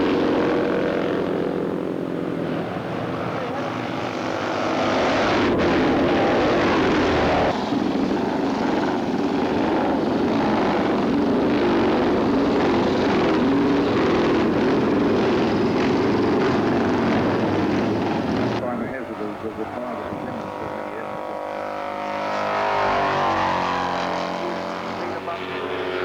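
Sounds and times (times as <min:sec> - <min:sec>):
racing motorcycle engines revving: 0:00.0 - 0:26.0.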